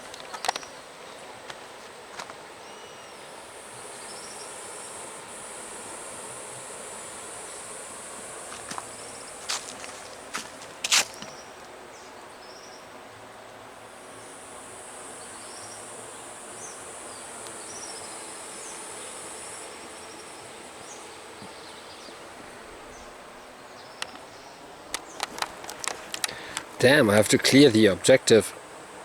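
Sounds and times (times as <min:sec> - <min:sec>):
sharp clicks: 0:24.9 - 0:26.8.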